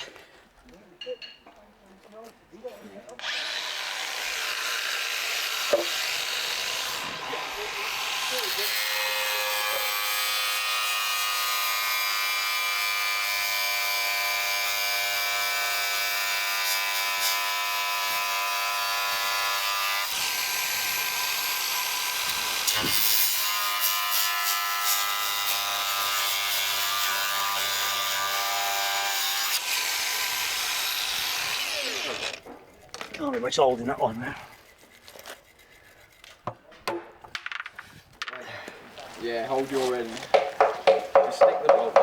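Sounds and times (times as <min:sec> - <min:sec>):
electric power tool buzzing: 0:03.2 - 0:32.5.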